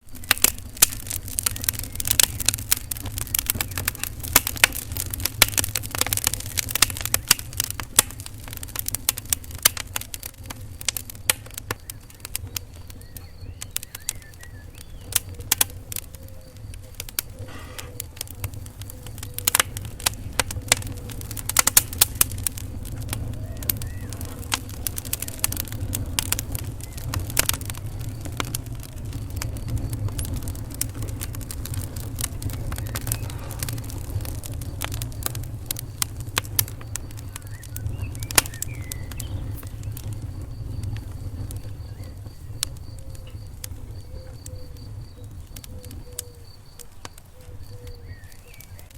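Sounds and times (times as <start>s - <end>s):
low rumble of flames: 0.0s - 48.9s
wood fire crackling and popping: 0.0s - 48.9s.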